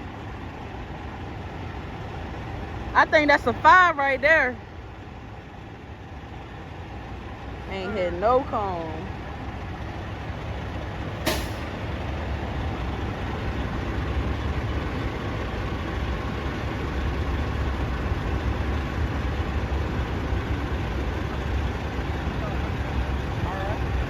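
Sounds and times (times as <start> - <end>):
diesel engine running: 0.0 - 24.0
air brakes hissing: 11.2 - 12.0.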